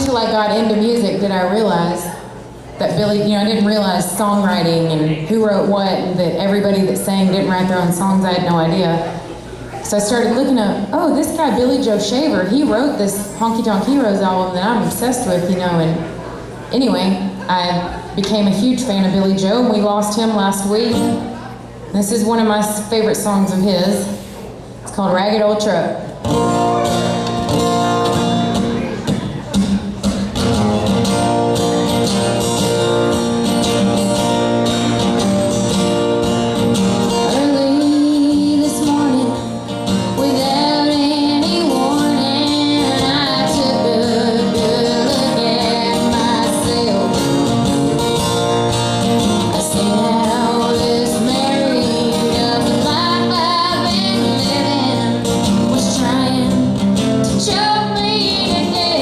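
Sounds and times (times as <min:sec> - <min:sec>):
country band with guitar: 0:00.0 - 0:59.0
woman singing: 0:37.2 - 0:48.3, 0:49.5 - 0:59.0.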